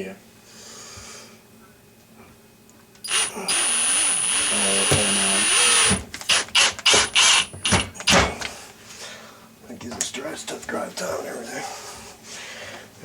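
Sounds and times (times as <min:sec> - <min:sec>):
cordless drill whining: 0:03.0 - 0:08.3.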